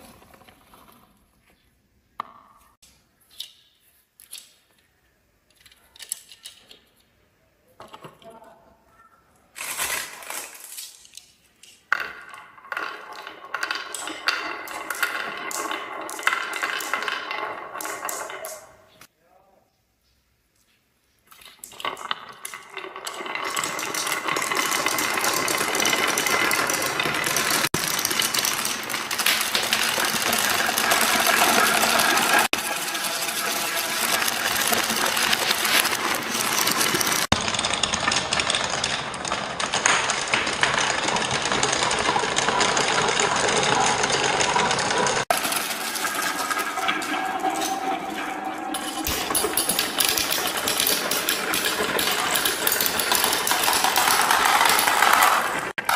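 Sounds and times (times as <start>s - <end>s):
marbles rattling down track: 9.6s - 19.0s, 21.4s - 55.9s.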